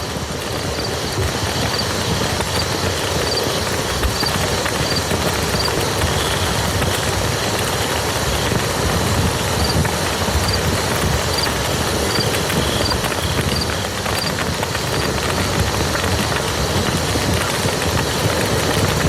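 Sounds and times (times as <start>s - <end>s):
rain on muddy ground: 0.0s - 19.0s.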